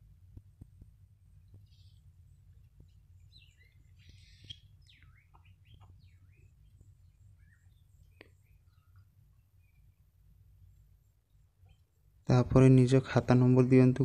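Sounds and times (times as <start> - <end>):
faint birds chirping: 0.0 - 14.0
low steady hum: 0.0 - 14.0.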